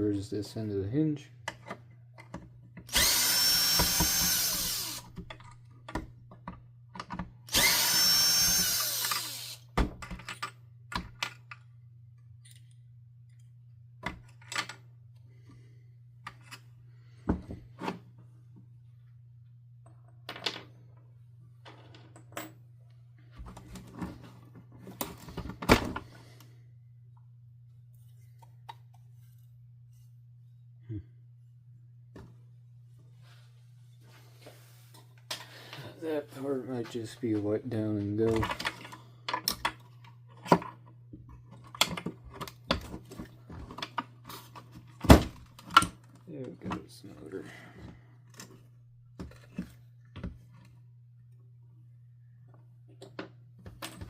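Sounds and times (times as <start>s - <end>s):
cordless drill whine: 2.9s - 5.1s, 7.5s - 9.7s
plastic parts clicking and knocking: 3.8s - 7.4s, 38.2s - 44.2s.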